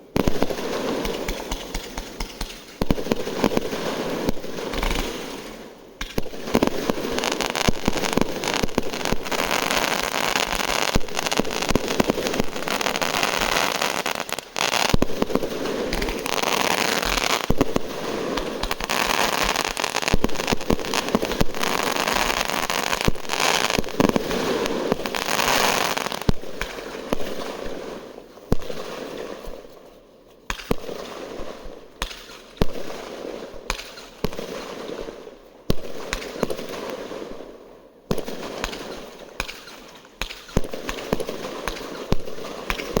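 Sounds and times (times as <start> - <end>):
fireworks bangs and crackling: 0.0 - 29.8, 30.4 - 43.0.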